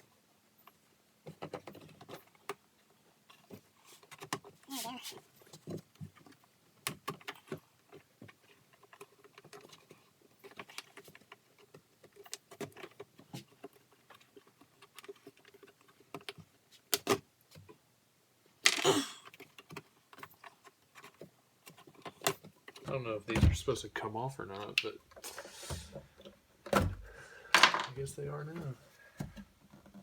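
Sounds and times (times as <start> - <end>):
scraping rustle: 3.3 - 6.5.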